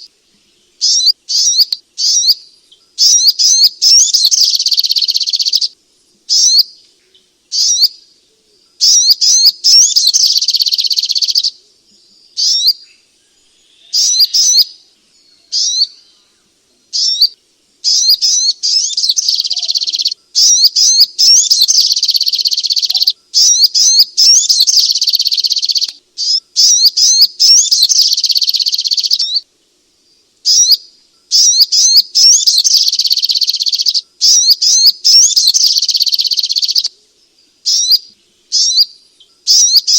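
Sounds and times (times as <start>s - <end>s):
bird high-pitched chattering song: 0.8s - 2.4s, 3.0s - 6.8s, 7.5s - 8.0s, 8.8s - 11.6s, 12.4s - 12.9s, 13.8s - 14.8s, 15.4s - 16.1s, 16.9s - 29.4s, 30.5s - 36.9s, 37.6s - 39.9s.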